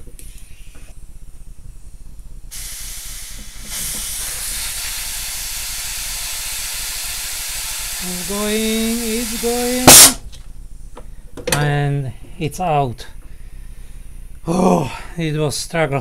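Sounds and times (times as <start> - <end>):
compressed air hissing: 2.5 - 10.3.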